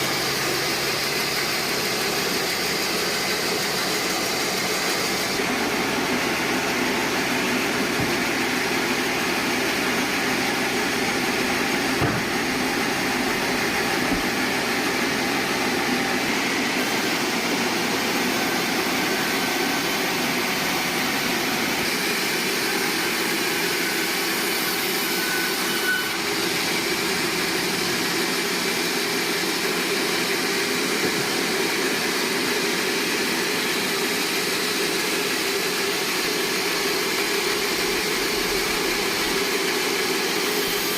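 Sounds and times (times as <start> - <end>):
sawmill machinery drone: 0.0 - 40.9
short knocks: 12.0 - 12.4.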